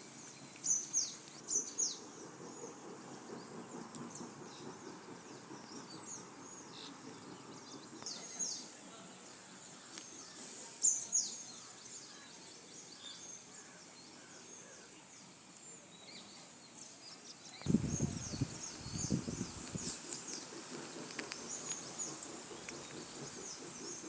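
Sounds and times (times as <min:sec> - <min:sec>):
outdoor background noise: 0:00.0 - 0:24.0
birds chirping: 0:16.0 - 0:24.0
low rumbling noise: 0:17.7 - 0:19.9.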